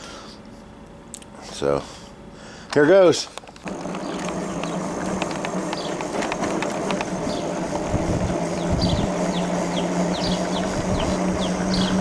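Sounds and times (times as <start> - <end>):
electric bike motor humming: 3.6 - 12.0
wind rumbling on microphone: 3.7 - 12.0.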